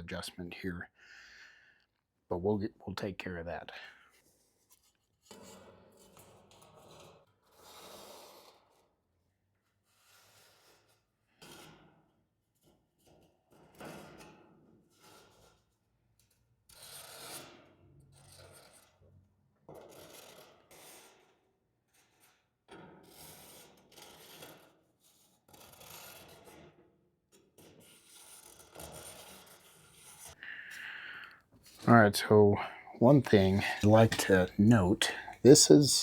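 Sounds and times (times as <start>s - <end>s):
rubbing and scraping on sheet metal: 4.6s - 8.9s, 9.8s - 12.1s, 13.0s - 19.1s, 19.7s - 30.4s.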